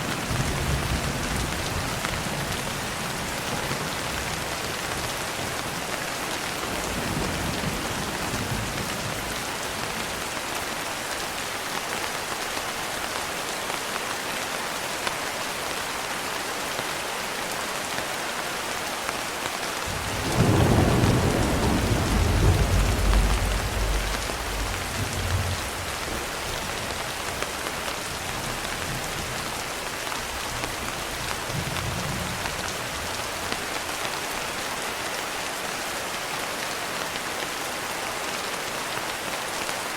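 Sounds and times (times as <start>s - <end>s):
steady rain: 0.0s - 39.9s
thunder rumble: 19.9s - 26.8s.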